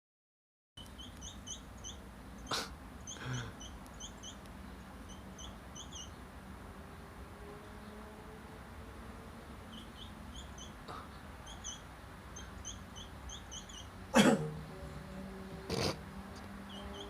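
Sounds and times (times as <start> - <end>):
sparrow chirping: 0.8 - 6.4, 9.6 - 15.2, 15.8 - 17.0.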